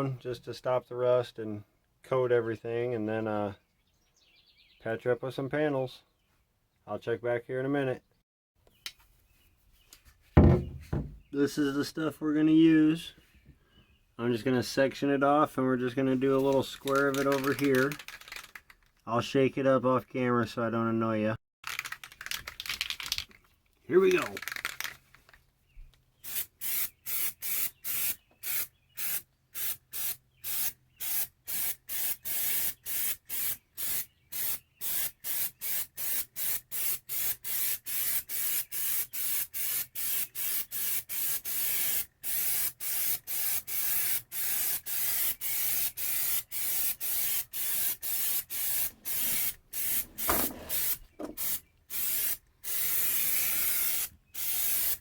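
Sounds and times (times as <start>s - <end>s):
brief knock: 10.4s - 11.3s
aerosol can spraying: 26.2s - 55.0s.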